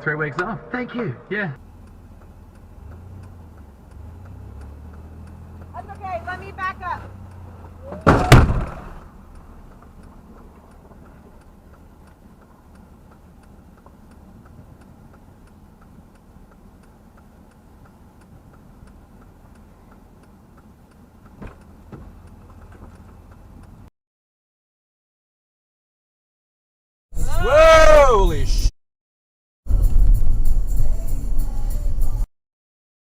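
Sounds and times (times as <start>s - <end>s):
low engine hum: 0.0s - 23.9s, 29.7s - 32.3s
indicator relay ticking: 1.6s - 8.0s, 9.0s - 23.9s.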